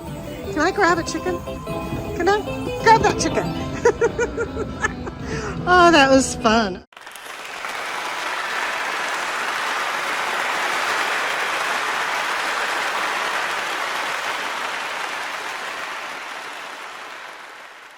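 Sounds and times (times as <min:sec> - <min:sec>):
applause: 0:06.9 - 0:17.9.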